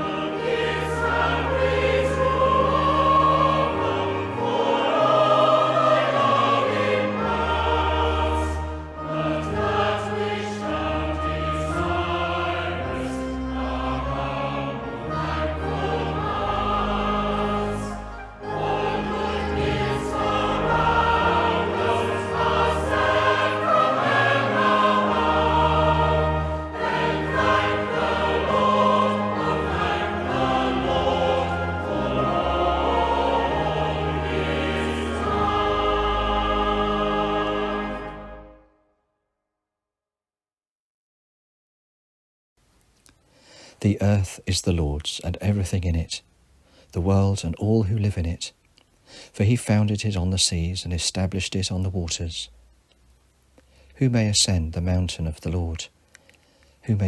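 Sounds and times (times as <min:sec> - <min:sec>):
sustained low accompaniment notes: 0:00.0 - 0:38.7
choir singing: 0:00.0 - 0:38.8.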